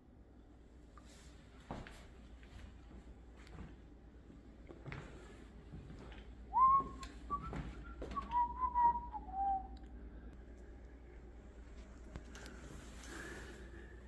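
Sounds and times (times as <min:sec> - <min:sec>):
person whistling a tune: 0:06.5 - 0:09.9.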